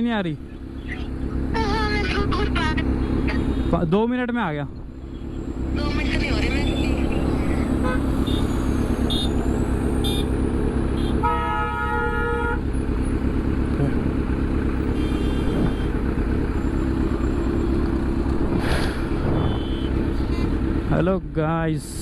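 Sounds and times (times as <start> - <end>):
road traffic engine rumble: 0.0 - 22.0
vehicle horn honking: 6.3 - 9.4, 10.0 - 12.7, 14.9 - 16.1, 19.2 - 20.8.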